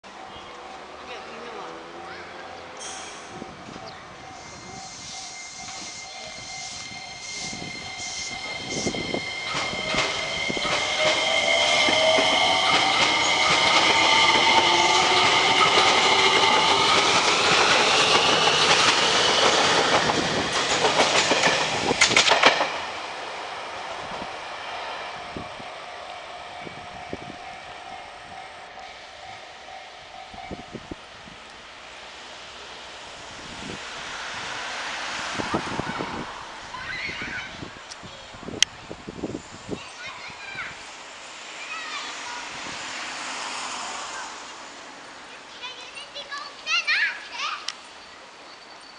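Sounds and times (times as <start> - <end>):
train rolling along track: 0.0 - 48.9
electric train motor whine: 3.7 - 20.9.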